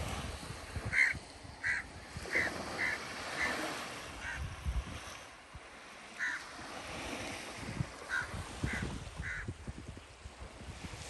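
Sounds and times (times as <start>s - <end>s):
calm sea waves: 0.0s - 11.0s
bird calling: 0.9s - 4.4s, 6.2s - 6.5s.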